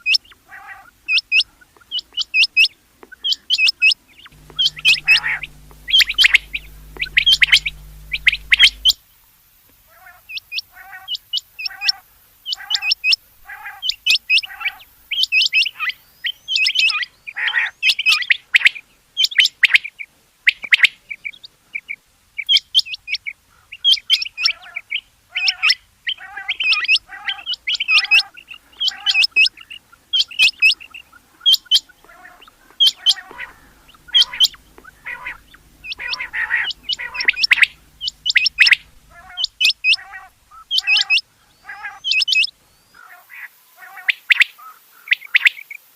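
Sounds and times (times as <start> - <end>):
low hum: 4.3 - 9.0, 33.0 - 40.6
quail calling: 4.4 - 8.9, 25.4 - 45.6.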